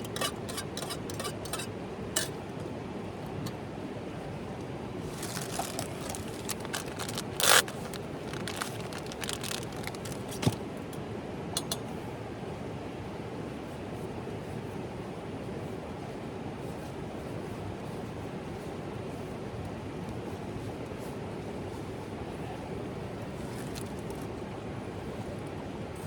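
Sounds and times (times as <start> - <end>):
scraping and crackling clicks: 5.0 - 10.6.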